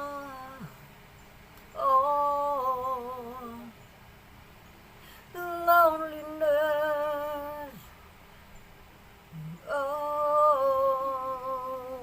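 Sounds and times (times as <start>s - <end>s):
woman singing unaccompanied: 0.0s - 1.0s, 1.6s - 3.9s, 5.1s - 8.0s, 9.3s - 12.0s.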